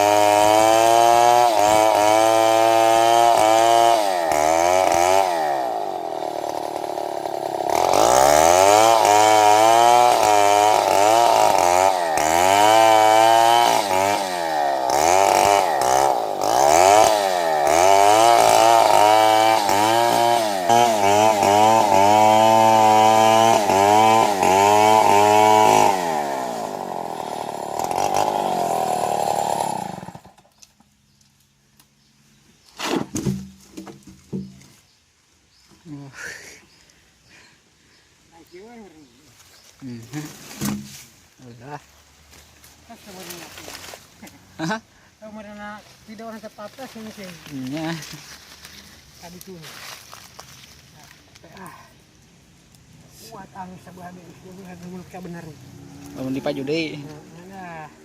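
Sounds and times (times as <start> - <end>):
chainsaw cutting wood: 0.0 - 30.8, 40.2 - 41.1, 54.7 - 58.0.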